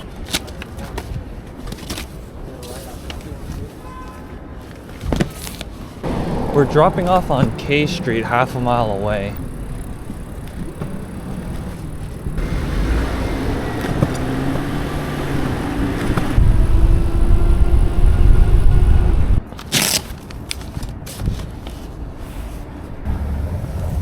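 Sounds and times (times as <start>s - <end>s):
city traffic: 0.0s - 24.0s
wind rumble on microphone: 6.0s - 12.4s, 14.5s - 19.5s.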